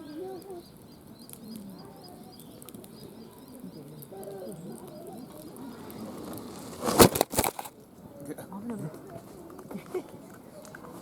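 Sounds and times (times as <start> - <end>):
low cooing calls: 0.0 - 6.7
campfire crackles: 0.1 - 11.0.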